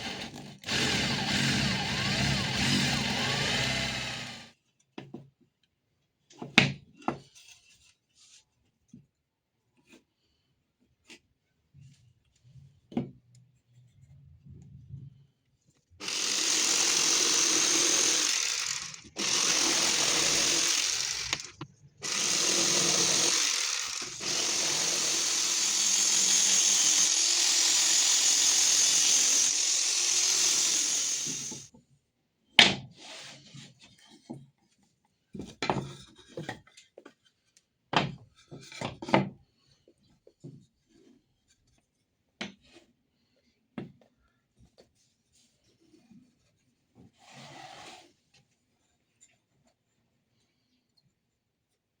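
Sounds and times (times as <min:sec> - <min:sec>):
power tool running: 0:00.0 - 0:04.5, 0:16.0 - 0:31.7.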